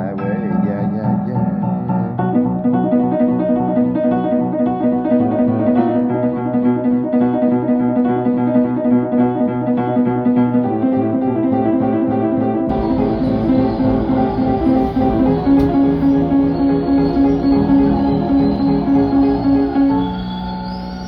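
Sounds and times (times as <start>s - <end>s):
keyboard playing repeated chords: 12.7s - 21.0s.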